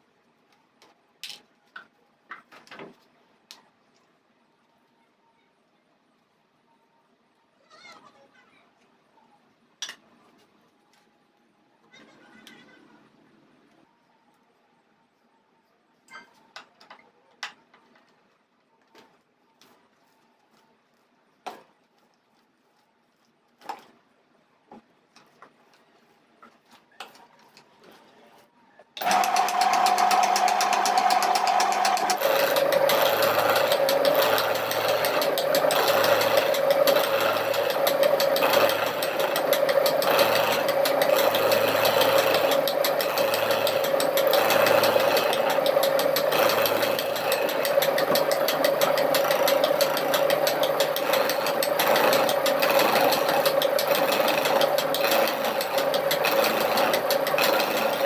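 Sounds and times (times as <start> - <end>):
power tool motor whining: 29.0 - 58.0.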